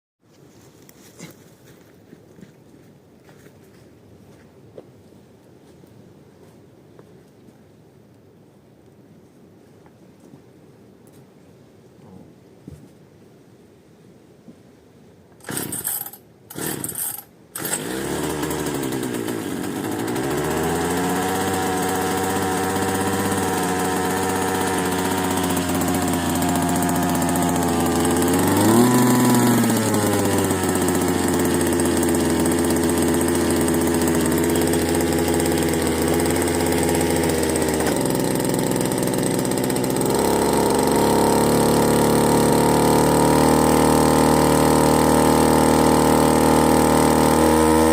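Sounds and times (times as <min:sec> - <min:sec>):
engine starting and running: 0:15.4 - 0:47.9.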